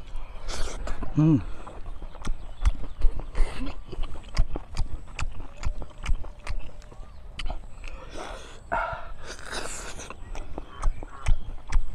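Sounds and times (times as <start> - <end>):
chewing and lip-smacking: 0.0 - 11.9
breathy mouth sound: 0.1 - 2.4, 3.1 - 5.4, 7.4 - 11.9.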